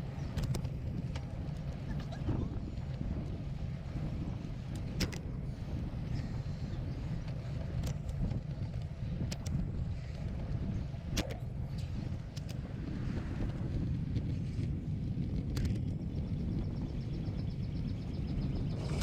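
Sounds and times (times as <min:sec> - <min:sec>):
wind buffeting microphone: 0:00.0 - 0:19.0
sharp clicks and rattles: 0:00.2 - 0:02.2, 0:07.6 - 0:09.7, 0:12.2 - 0:12.6, 0:15.4 - 0:16.0.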